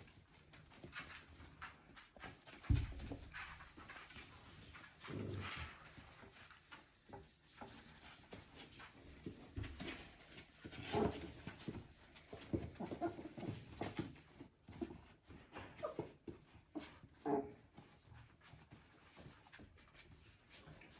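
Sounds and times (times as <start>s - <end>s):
puppy paws pattering: 0.0s - 20.9s
puppies squeaking and grunting: 9.8s - 20.0s.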